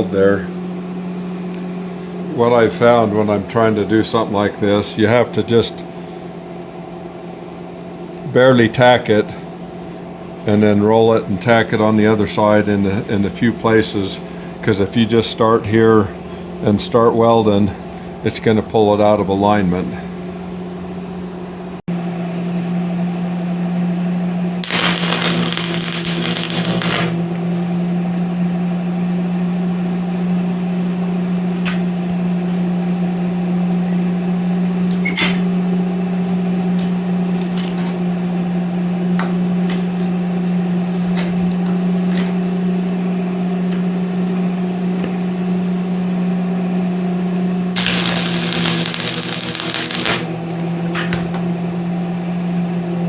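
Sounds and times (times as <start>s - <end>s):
welding arc crackle: 24.6s - 27.5s, 47.8s - 51.2s
welder humming: 24.6s - 28.3s, 47.7s - 52.6s.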